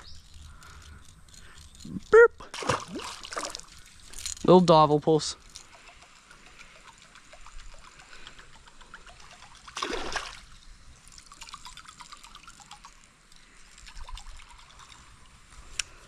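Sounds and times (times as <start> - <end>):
creek water trickling: 0.0 - 16.0
small drips: 5.4 - 16.0.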